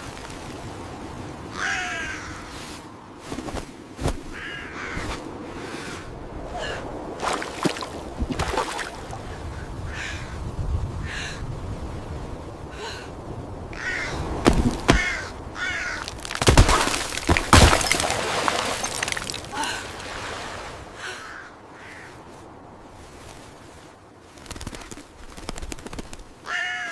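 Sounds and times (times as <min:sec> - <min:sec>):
crow cawing: 0:01.5 - 0:02.5, 0:04.4 - 0:05.0, 0:13.8 - 0:16.1, 0:21.0 - 0:22.1, 0:26.4 - 0:26.9
loud sharp cracks: 0:14.4 - 0:19.4.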